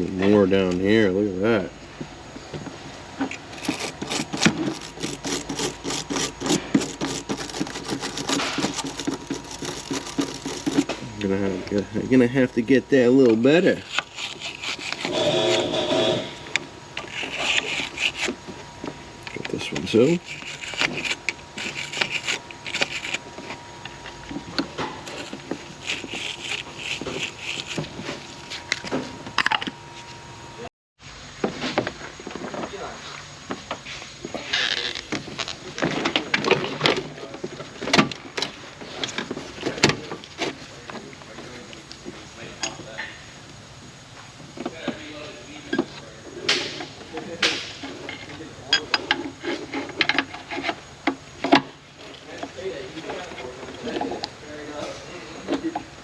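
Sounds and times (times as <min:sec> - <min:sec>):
wire brush scraping metal: 0:03.3 - 0:11.0, 0:13.6 - 0:16.4, 0:17.0 - 0:18.4, 0:19.6 - 0:23.6, 0:25.0 - 0:28.7.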